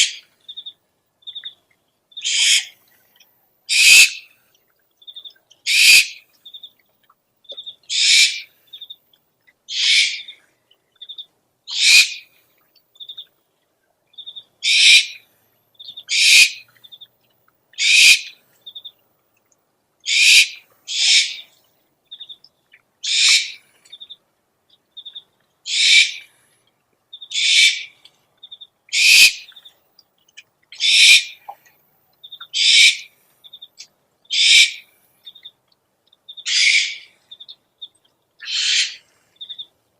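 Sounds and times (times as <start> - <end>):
owl screeching: 2.2 - 2.7, 3.7 - 4.2, 5.7 - 6.2, 7.9 - 8.5, 9.7 - 10.3, 11.7 - 12.2, 14.6 - 15.2, 16.1 - 16.6, 17.8 - 18.3, 20.1 - 21.5, 23.0 - 23.6, 25.7 - 26.3, 27.3 - 27.9, 28.9 - 29.4, 30.8 - 31.4, 32.6 - 33.1, 34.3 - 34.8, 36.5 - 37.1, 38.4 - 39.1.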